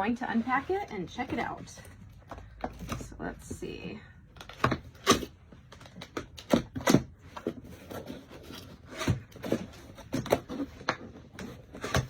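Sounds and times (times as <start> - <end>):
cardboard rubbing and scraping: 0.1 - 2.0, 6.0 - 12.0.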